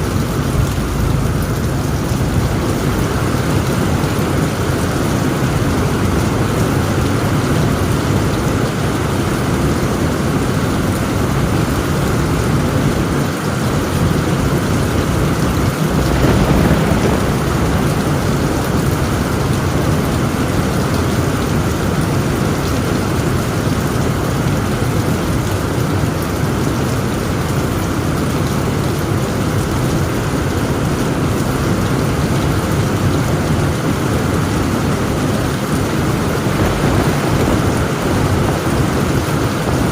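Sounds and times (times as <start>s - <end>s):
thunder rumbling: 0.0s - 25.9s, 34.0s - 39.9s
heavy rain on a tent roof: 0.0s - 39.9s.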